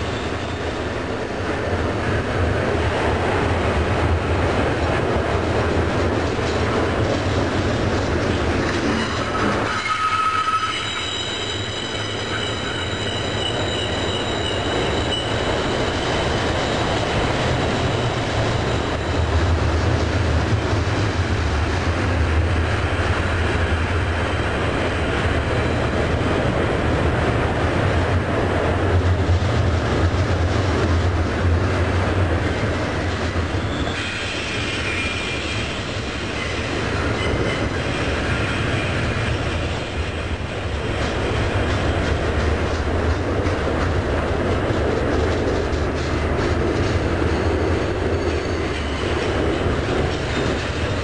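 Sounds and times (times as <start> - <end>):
freight cars rumbling on rails: 0.0 - 51.0
wheel squeals: 8.9 - 19.2, 33.5 - 35.8.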